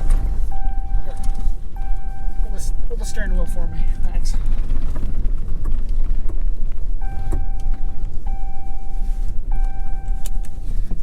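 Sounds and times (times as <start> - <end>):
electronic warning chimes: 0.0 - 4.4, 7.0 - 10.9
pickup truck engine rumble: 0.0 - 11.0.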